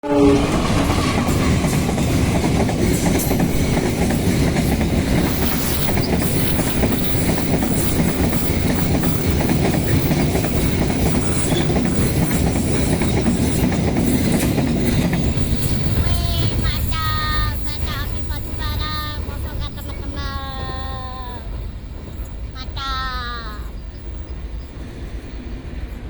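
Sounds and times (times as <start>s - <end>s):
freight train wheels clattering: 0.0s - 22.6s.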